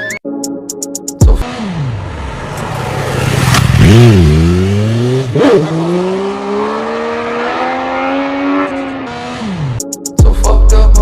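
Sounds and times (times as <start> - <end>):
vehicle engine revving: 1.4 - 9.8.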